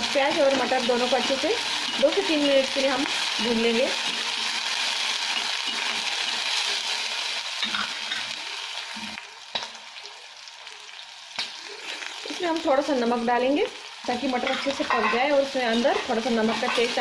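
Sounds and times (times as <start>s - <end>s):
vegetables sizzling in hot oil: 0.0s - 17.0s
spatula scraping and stirring: 14.0s - 17.0s.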